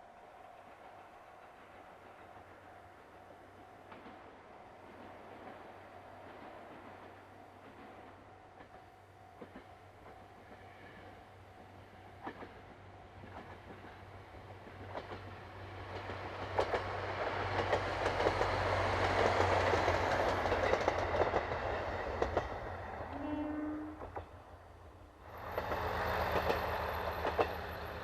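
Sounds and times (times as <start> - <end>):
diesel railcar engine drone: 0.0 - 28.0
wheels clicking over rail joints: 12.2 - 23.2, 25.4 - 28.0.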